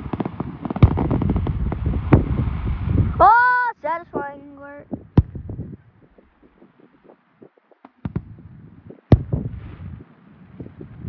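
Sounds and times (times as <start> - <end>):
firework shells bursting: 0.0 - 2.3
faint firework crackle: 0.0 - 3.2
low rumbling: 0.0 - 11.0.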